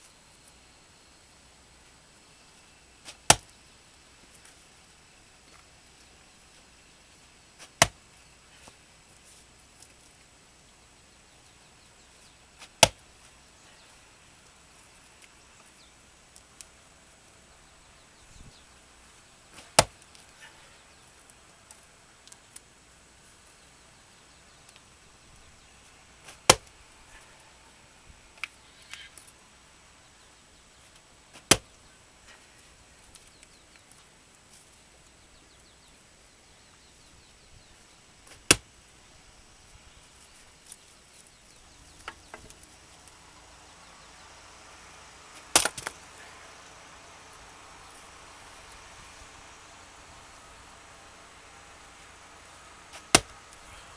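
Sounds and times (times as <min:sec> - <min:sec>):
axe striking wood: 0:12.6 - 0:13.0, 0:19.6 - 0:20.0, 0:26.3 - 0:26.7, 0:31.4 - 0:31.7, 0:38.3 - 0:38.6, 0:45.4 - 0:46.0, 0:52.9 - 0:53.4.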